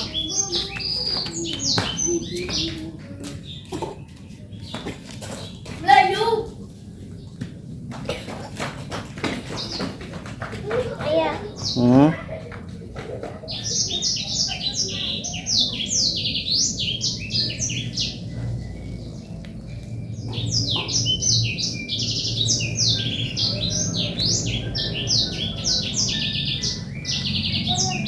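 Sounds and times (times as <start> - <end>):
birds chattering: 0.0 - 28.0.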